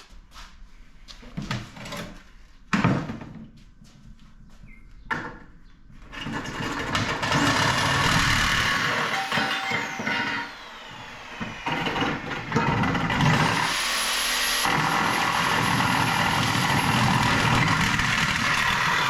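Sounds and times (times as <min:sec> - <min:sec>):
aluminum scrap clanking: 0:08.8 - 0:10.6.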